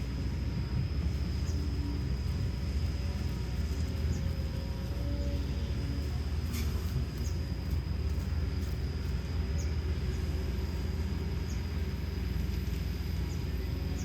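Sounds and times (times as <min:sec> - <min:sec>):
excavator diesel engine rumbling: 0:00.0 - 0:14.0
thin steady high tone: 0:00.0 - 0:14.0.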